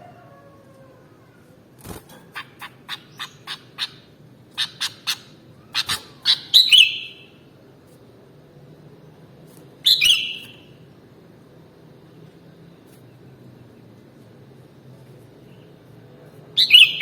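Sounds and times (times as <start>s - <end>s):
bulbul calling: 2.3s - 7.3s.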